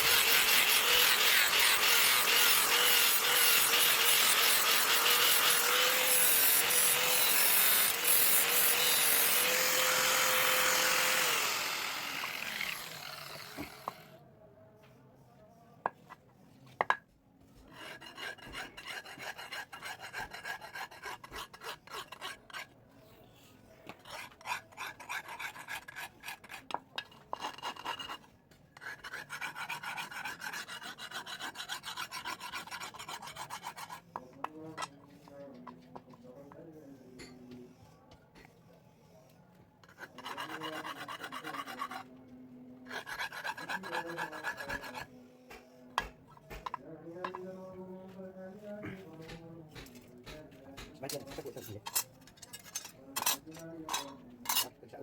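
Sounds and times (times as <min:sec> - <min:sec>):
hand file rasping on steel: 0:00.0 - 0:14.1, 0:17.6 - 0:22.8, 0:23.9 - 0:35.0, 0:39.8 - 0:42.2, 0:42.8 - 0:47.8, 0:48.8 - 0:54.7
power tool grinding steel: 0:00.0 - 0:14.1, 0:43.0 - 0:47.5.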